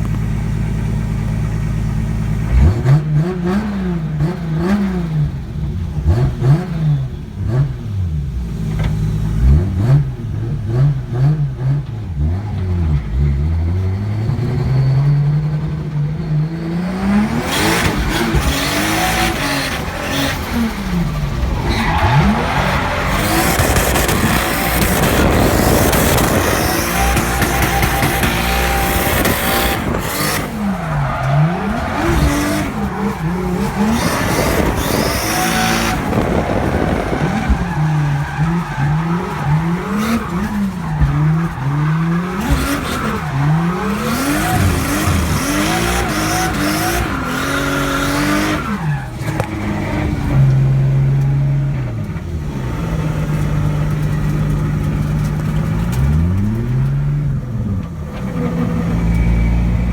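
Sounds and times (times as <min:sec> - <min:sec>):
car engine revving: 0:00.0 - 0:59.9
tyres squealing: 0:17.6 - 0:49.7.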